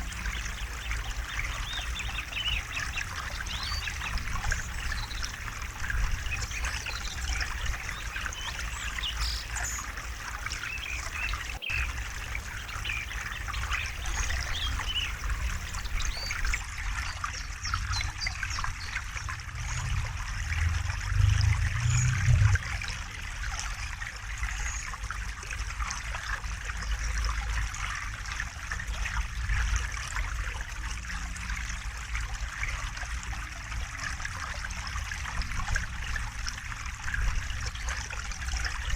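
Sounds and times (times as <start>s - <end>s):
river water over rocks: 0.0s - 38.9s.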